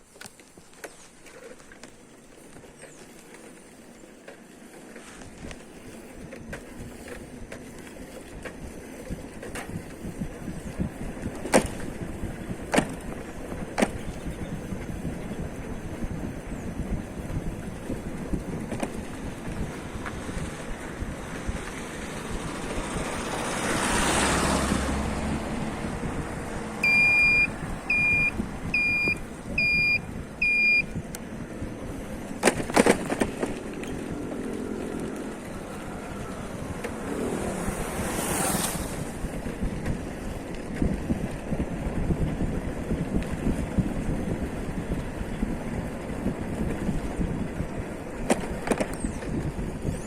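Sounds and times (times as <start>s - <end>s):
road traffic noise: 0.0s - 50.0s
vehicles passing with a whoosh: 0.0s - 50.0s
wind buffeting microphone: 5.2s - 50.0s
high electronic beeps: 26.8s - 30.9s.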